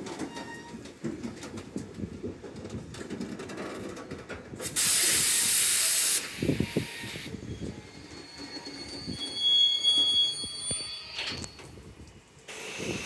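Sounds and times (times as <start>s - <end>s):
train wheels clattering on rails: 0.0s - 5.4s
loud hiss: 4.6s - 7.4s, 12.5s - 13.0s
high-pitched wheel squeal: 6.4s - 11.8s.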